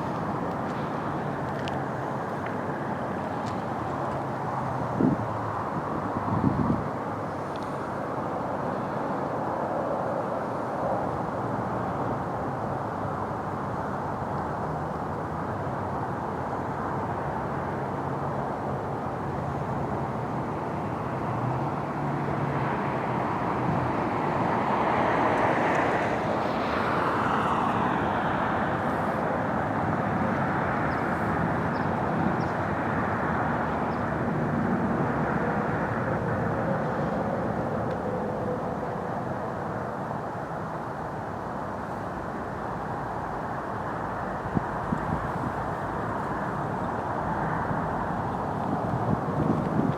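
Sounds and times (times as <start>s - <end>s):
traffic rumble: 0.0s - 9.1s, 11.0s - 49.9s
vehicle passing by: 24.5s - 32.4s.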